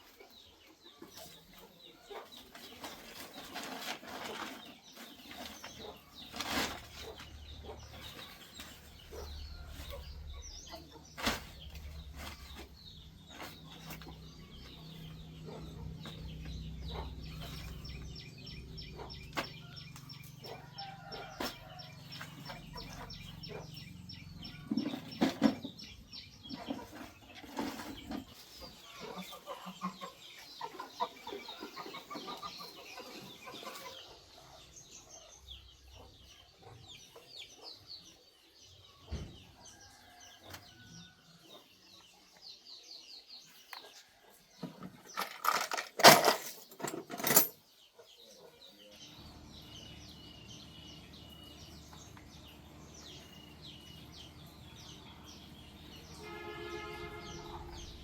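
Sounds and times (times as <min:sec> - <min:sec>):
chickens clucking: 0:00.0 - 0:45.7.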